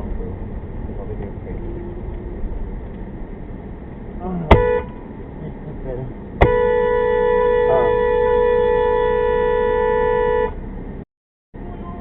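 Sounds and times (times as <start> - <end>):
car horn blast: 4.5 - 5.2, 6.4 - 10.7.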